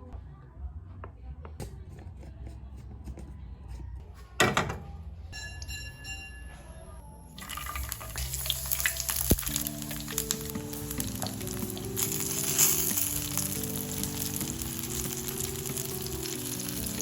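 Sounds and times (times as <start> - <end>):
background music: 4.6 - 17.0
food frying in hot oil: 7.4 - 17.0.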